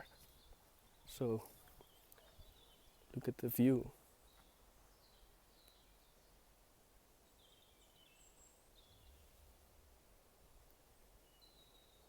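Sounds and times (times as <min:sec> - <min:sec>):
distant bird chirps: 0:00.0 - 0:06.5.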